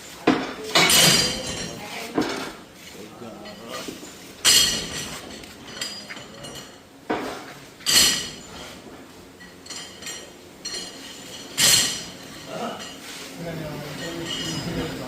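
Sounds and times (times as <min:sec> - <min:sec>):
ringing metal clanks: 0:14.0 - 0:15.0.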